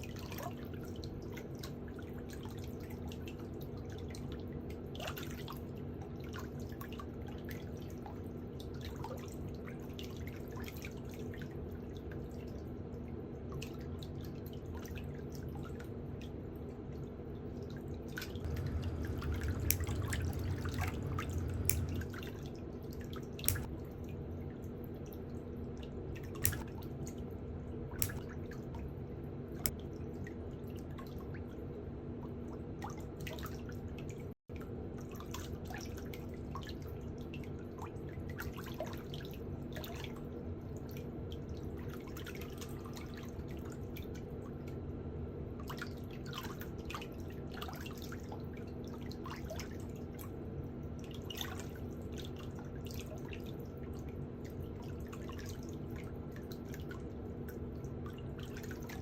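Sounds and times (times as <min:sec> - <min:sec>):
low electrical hum: 0:05.6 - 0:38.2
water dripping and splashing: 0:18.4 - 0:22.2, 0:23.4 - 0:23.7, 0:26.4 - 0:26.7, 0:28.0 - 0:28.2.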